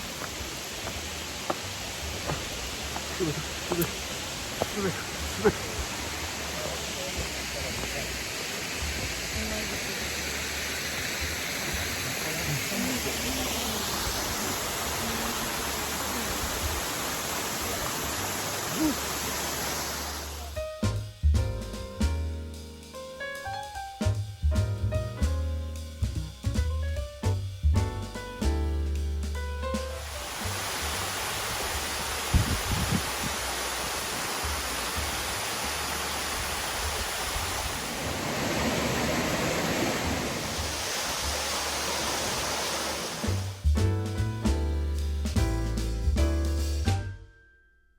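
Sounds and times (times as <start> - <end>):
waterfall roaring: 0.0 - 20.5, 30.0 - 43.6.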